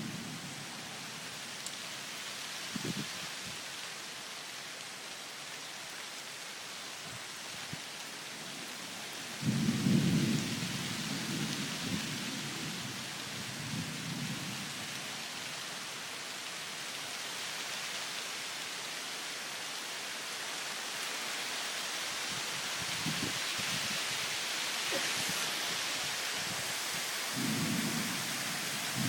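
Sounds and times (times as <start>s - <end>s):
rain hissing: 0.0s - 29.0s
thunder rumbling: 27.3s - 29.0s.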